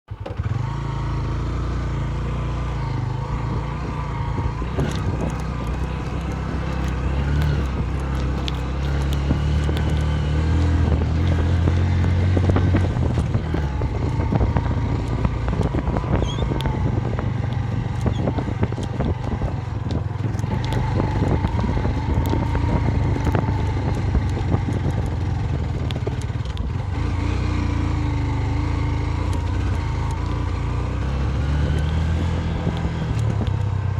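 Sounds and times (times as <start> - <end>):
motorcycle engine running: 0.1 - 33.9.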